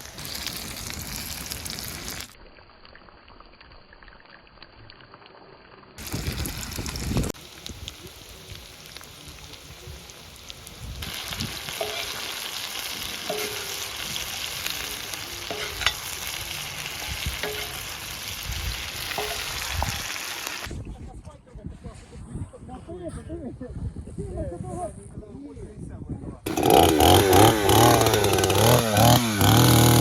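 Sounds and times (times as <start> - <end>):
food sizzling in a pan: 0.0 - 2.4, 6.0 - 20.7
spatula clinking against pan: 11.8 - 12.2, 13.3 - 13.9, 15.5 - 16.1, 17.4 - 17.9, 19.2 - 19.5.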